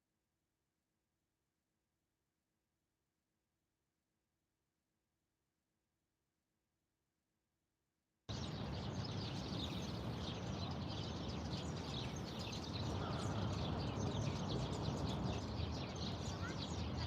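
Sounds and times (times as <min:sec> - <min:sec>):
small birds chirping: 0:08.3 - 0:17.0.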